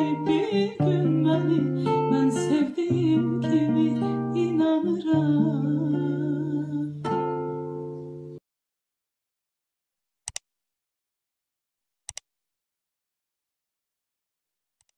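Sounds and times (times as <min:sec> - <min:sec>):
girl singing: 0:00.0 - 0:07.0
strummed guitar: 0:00.0 - 0:08.4.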